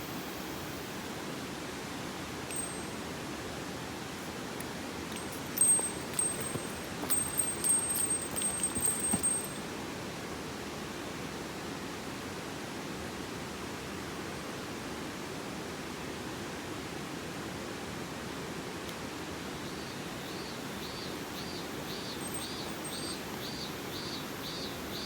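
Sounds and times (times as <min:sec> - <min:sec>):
high ringing tinkles: 0:02.5 - 0:03.2, 0:05.1 - 0:09.6, 0:21.9 - 0:24.6.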